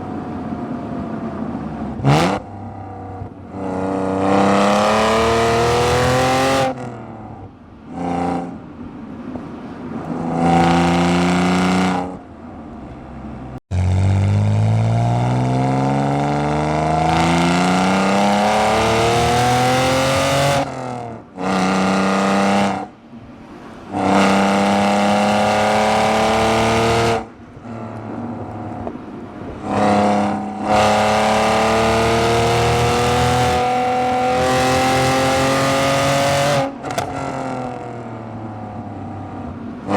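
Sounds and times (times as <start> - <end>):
car exhaust revving: 23.9 - 28.9, 29.6 - 38.5.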